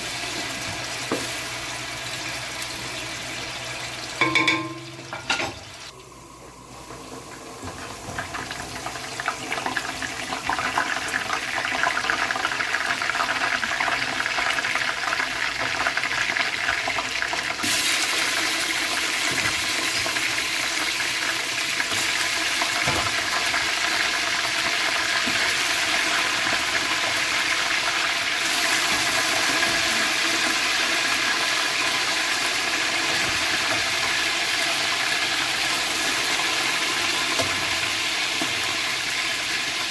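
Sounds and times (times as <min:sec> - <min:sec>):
pot bubbling and sizzling: 0:00.0 - 0:39.9.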